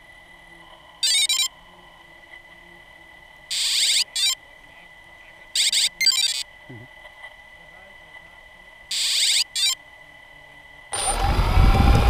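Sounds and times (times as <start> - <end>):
faint high-pitched whine: 0.0 - 12.0
electronic ringtone tones: 1.0 - 1.5, 3.5 - 4.4, 5.6 - 6.4, 8.9 - 9.8.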